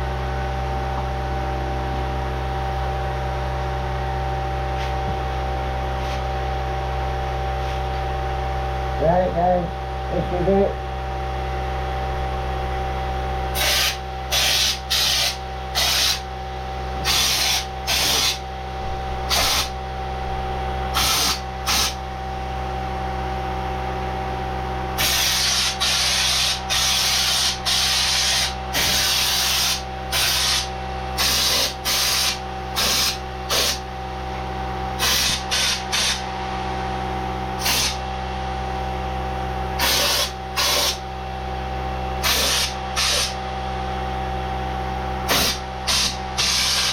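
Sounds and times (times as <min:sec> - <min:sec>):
steady hum with fixed tones: 0:00.0 - 0:46.9
spray gun hissing blasts: 0:13.6 - 0:16.2, 0:19.3 - 0:19.7, 0:21.0 - 0:22.0, 0:25.0 - 0:33.8, 0:35.0 - 0:36.2, 0:39.8 - 0:41.0, 0:42.2 - 0:43.3, 0:45.3 - 0:46.9.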